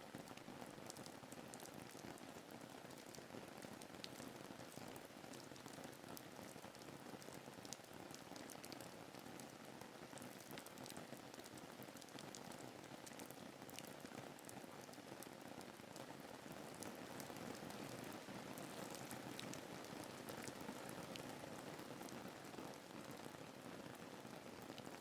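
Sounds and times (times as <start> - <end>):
raindrop ticks: 18.6 - 21.3.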